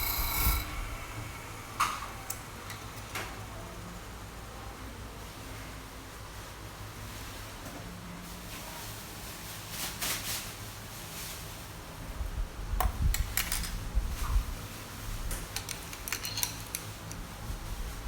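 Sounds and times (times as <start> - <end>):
steel nippers clicking: 0.0 - 0.9
low steady hum: 0.0 - 4.9.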